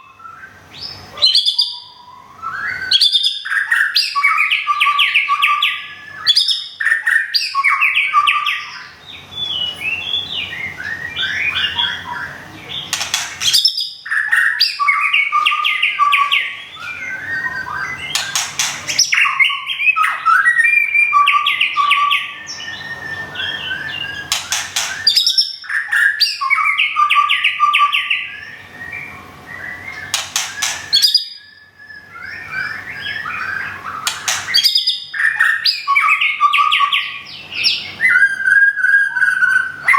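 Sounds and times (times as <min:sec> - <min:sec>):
bird singing fluty whistles: 0:00.0 - 0:39.9
bird harsh rattles: 0:13.0 - 0:13.7, 0:18.2 - 0:19.2, 0:24.3 - 0:25.3, 0:30.1 - 0:31.1, 0:34.1 - 0:34.8.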